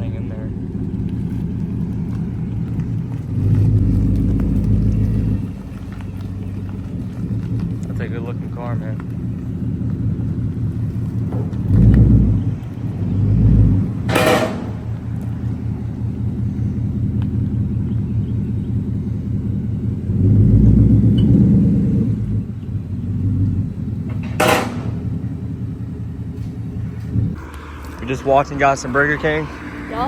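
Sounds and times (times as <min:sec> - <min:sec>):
car engine idling: 0:00.0 - 0:30.0
sharp knocks: 0:14.0 - 0:15.2, 0:24.1 - 0:25.2.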